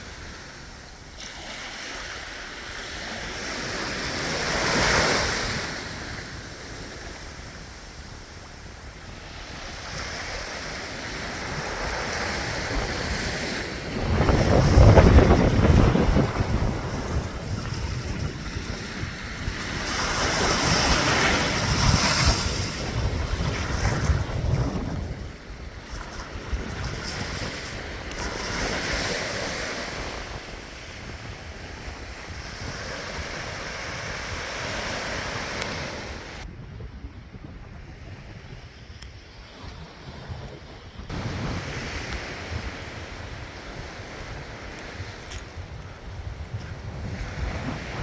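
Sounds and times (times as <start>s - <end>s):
sea waves washing: 0.0s - 36.5s
wind buffeting microphone: 3.2s - 48.0s.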